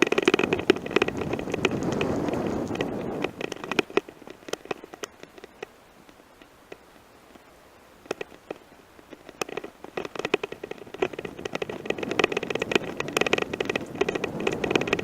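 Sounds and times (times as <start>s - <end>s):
bike rattling over gravel: 0.0s - 15.0s.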